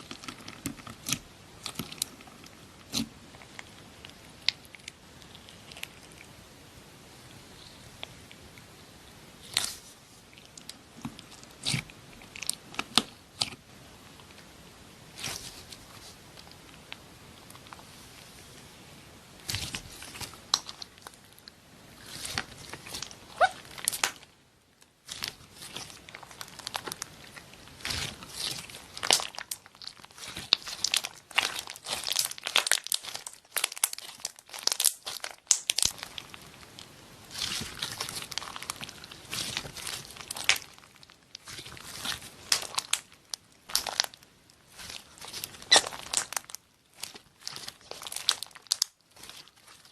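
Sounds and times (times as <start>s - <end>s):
slime squeezed by hand: 22.0s - 24.2s, 25.1s - 36.4s, 43.7s - 49.8s.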